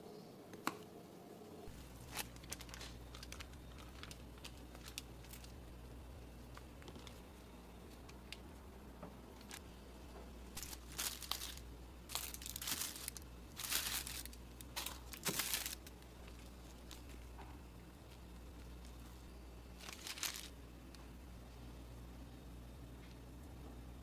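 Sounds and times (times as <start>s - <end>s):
faint room hum: 0.0s - 24.0s
crinkling and rustling: 1.7s - 21.1s.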